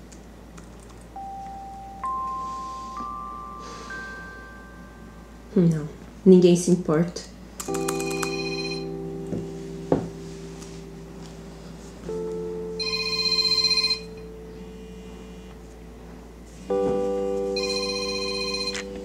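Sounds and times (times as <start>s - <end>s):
soft background music: 1.1s - 6.0s, 7.6s - 19.0s
mobile phone ringtone trilling: 7.7s - 9.1s, 12.6s - 15.4s, 16.7s - 19.0s.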